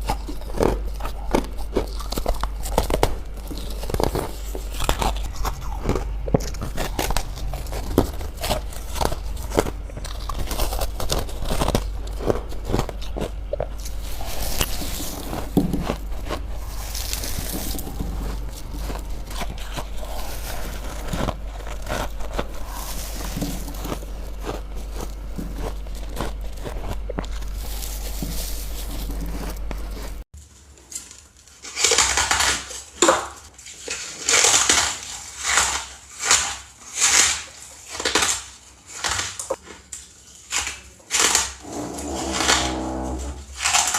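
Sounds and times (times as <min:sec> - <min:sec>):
ice being chewed: 0:00.0 - 0:30.3, 0:31.0 - 0:43.9
low hum: 0:00.0 - 0:30.3.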